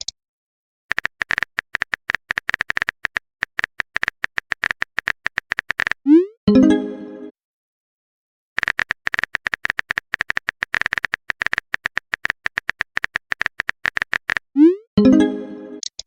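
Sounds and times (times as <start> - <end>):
phone keyboard typing clicks: 0.9 - 6.0, 8.6 - 14.4, 15.8 - 16.0.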